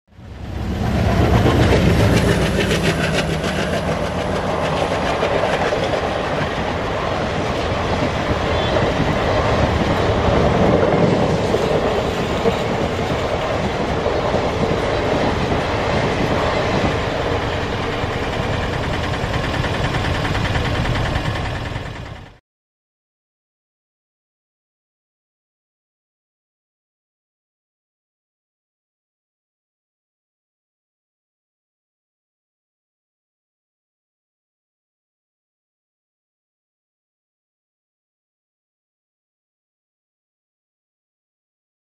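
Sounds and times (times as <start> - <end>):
low locomotive engine hum: 0.1 - 22.4
train wheels rushing over rails: 0.2 - 22.4.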